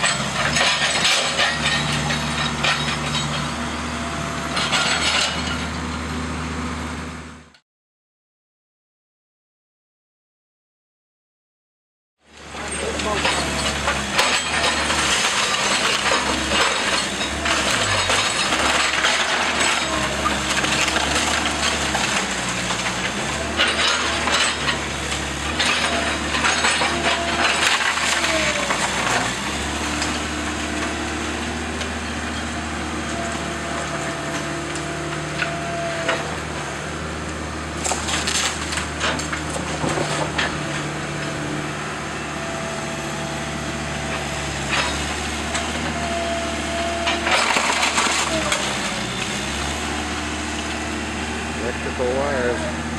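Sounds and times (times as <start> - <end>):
heavy machine engine running: 0.0 - 7.6, 12.3 - 52.9
wood cracking and splintering: 12.6 - 41.4, 44.2 - 50.8.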